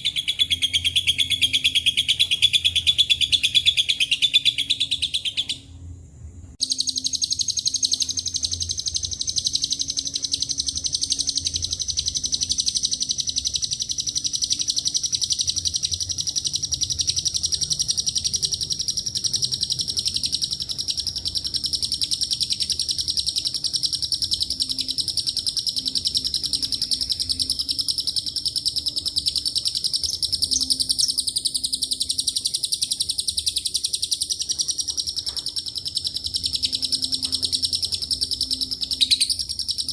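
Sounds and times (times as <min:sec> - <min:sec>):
lovebird chattering trill: 0:00.0 - 0:05.8, 0:06.6 - 0:39.9.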